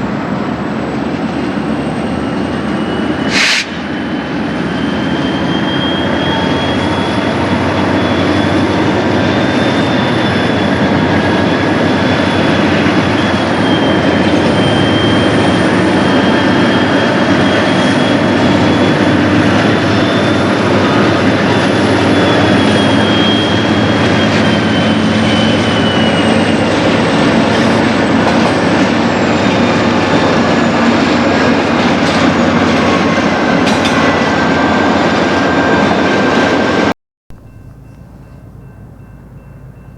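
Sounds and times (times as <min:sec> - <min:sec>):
high wheel squeal: 0:00.7 - 0:38.6
wheels clacking over rail joints: 0:16.0 - 0:34.4.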